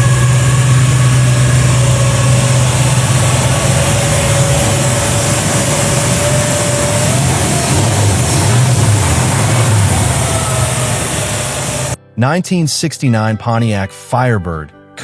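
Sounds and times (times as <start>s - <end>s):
car engine idling with whine: 0.0s - 12.0s.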